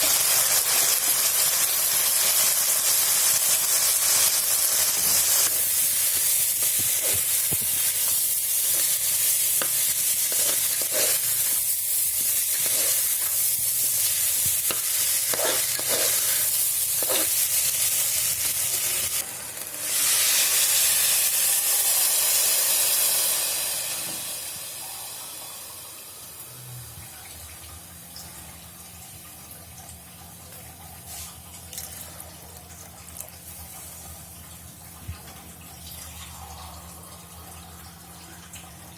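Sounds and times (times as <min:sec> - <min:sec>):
hot oil sizzling: 0:00.0 - 0:26.8
spoon scraping: 0:06.6 - 0:18.1.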